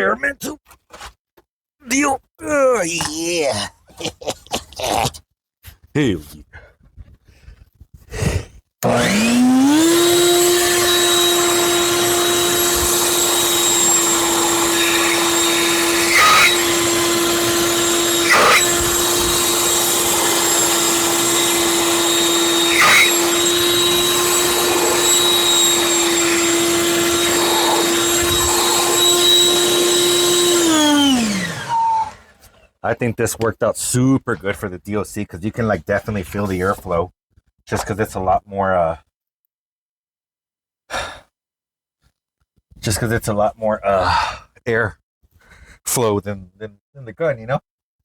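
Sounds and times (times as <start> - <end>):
electric blower motor running: 8.8 - 32.5.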